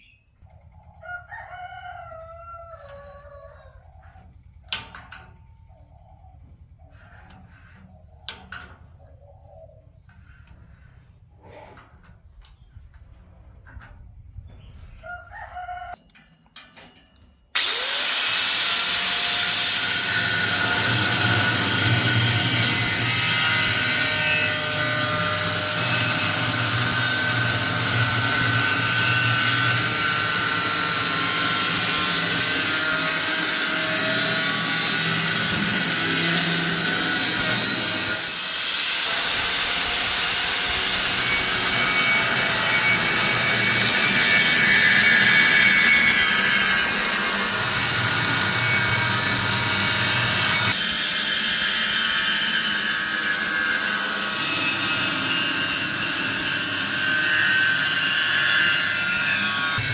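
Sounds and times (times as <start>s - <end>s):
power tool running: 17.6s - 59.9s.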